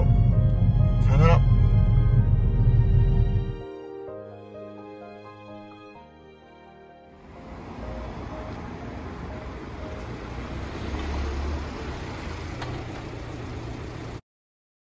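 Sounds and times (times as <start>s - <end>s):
car engine running: 0.0s - 3.6s, 7.3s - 14.2s
low rumble: 0.0s - 3.7s
road noise: 0.0s - 4.0s, 4.6s - 14.2s.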